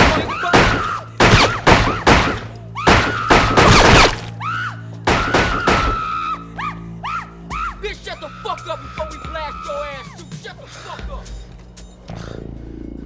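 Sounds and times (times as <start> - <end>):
gunshots with ringing tail: 0.0 - 4.3, 5.1 - 6.2
low music bed: 0.0 - 13.0.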